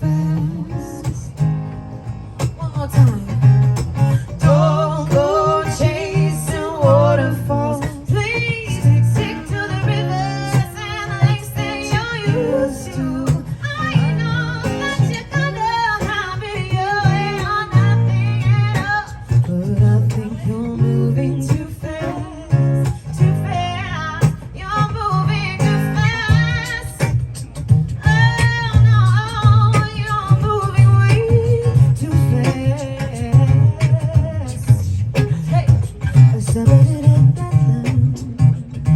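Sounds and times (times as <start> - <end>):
strummed guitar: 0.0 - 38.9.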